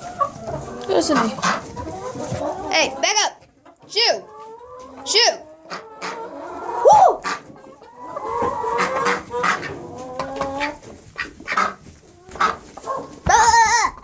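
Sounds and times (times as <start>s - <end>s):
chickens clucking: 0.0s - 14.0s
chicken drawn-out call: 5.7s - 14.0s.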